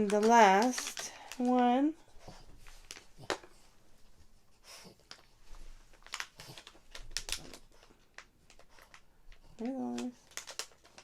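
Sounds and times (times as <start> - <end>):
wrapper tearing: 0.0 - 1.6, 5.0 - 11.0
packaging clicks and taps: 0.0 - 1.8, 5.9 - 11.0.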